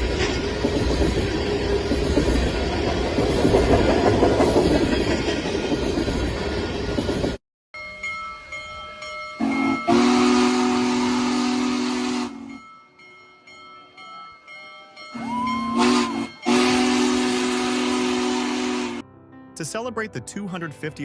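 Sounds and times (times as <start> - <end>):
train rumble and wheel noise: 0.0 - 7.4
train horn chord: 9.4 - 12.6, 15.2 - 19.0.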